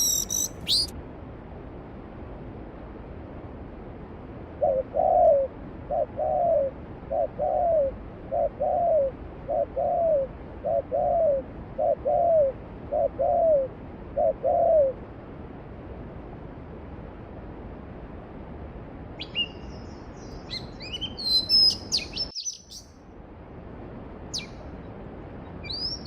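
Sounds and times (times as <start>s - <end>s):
dove cooing: 4.6s - 15.0s.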